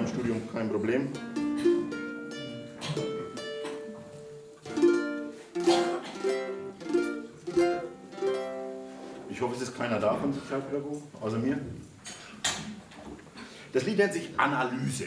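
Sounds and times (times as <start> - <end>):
acoustic guitar: 0.0 - 10.7.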